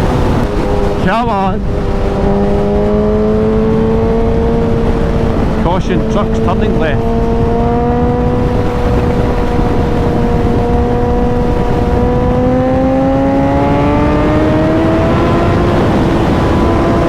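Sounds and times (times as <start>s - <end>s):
low rumble: 0.0s - 13.0s
motorcycle engine accelerating: 0.0s - 17.0s.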